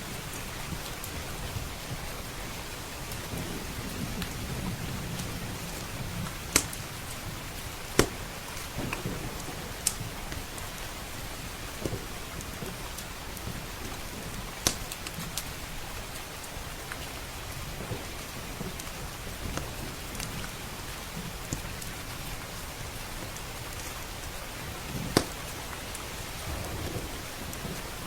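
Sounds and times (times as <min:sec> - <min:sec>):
steady rain: 0:00.0 - 0:28.0
wood fire popping: 0:00.0 - 0:28.0
low rumble: 0:26.3 - 0:28.0.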